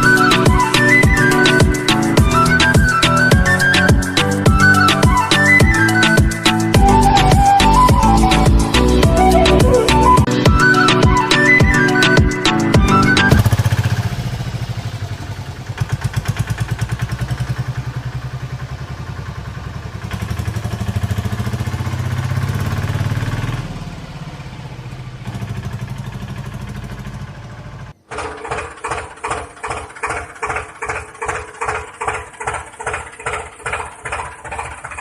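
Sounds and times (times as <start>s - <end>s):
small engine chugging: 13.3s - 35.0s.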